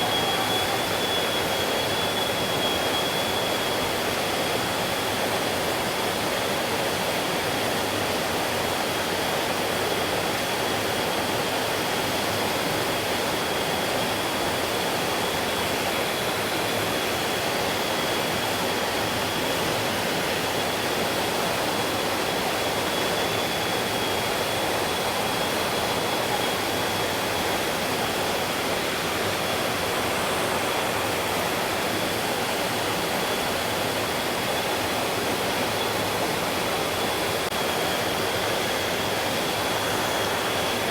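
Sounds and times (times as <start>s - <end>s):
thin high tone: 0.0s - 2.6s.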